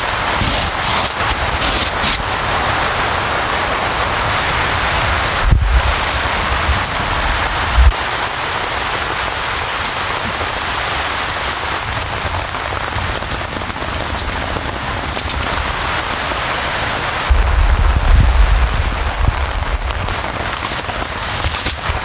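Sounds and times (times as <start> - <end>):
steady rain falling: 0.0 - 22.0
short low thump: 17.3 - 20.2.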